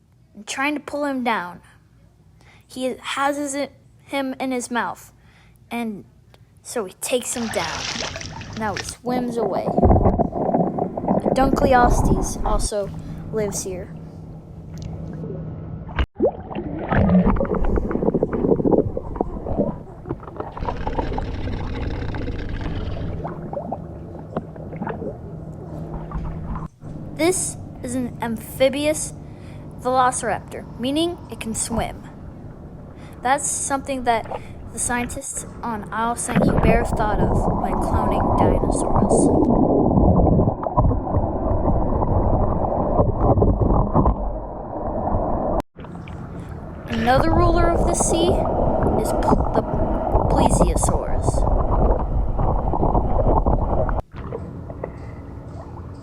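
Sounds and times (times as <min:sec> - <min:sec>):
water sloshing and gurgling: 0:07.1 - 0:56.0
water rushing: 0:07.2 - 0:13.7, 0:16.2 - 0:26.7, 0:33.6 - 0:54.4
wind rumble on microphone: 0:09.5 - 0:13.8, 0:36.2 - 0:45.6, 0:46.9 - 0:54.0.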